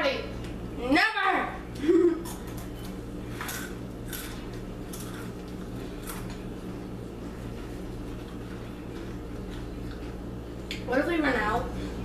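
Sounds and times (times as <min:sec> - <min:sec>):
low electrical hum: 0:00.0 - 0:12.0
chips crunching while chewed: 0:03.4 - 0:06.4.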